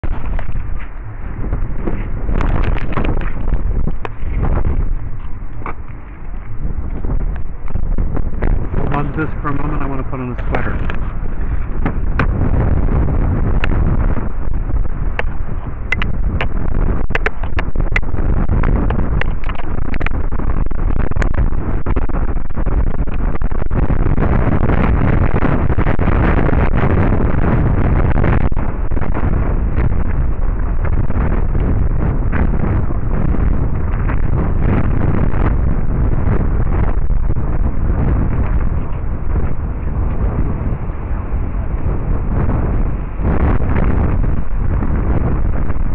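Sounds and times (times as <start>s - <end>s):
wind buffeting microphone: 0.0s - 45.9s
sharp pops: 15.9s - 18.1s.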